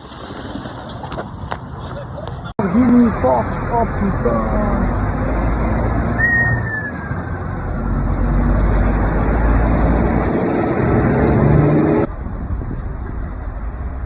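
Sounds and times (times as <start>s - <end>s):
road traffic noise: 0.0s - 14.0s
falling whistle-like tone: 6.2s - 7.5s.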